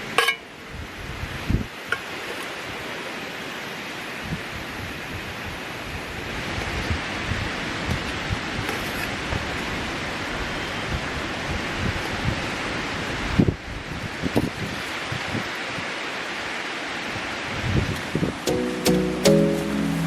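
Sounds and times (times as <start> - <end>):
wind gusts buffeting microphone: 0.7 - 1.7, 10.8 - 15.9, 17.1 - 18.4
surf: 18.4 - 20.0.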